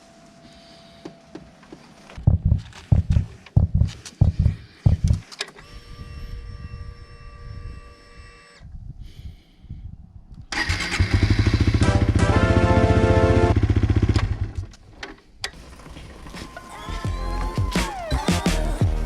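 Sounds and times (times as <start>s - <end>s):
starter motor cranking: 10.5s - 11.8s, 15.4s - 18.9s
motorcycle engine running: 11.1s - 14.7s, 15.6s - 19.0s.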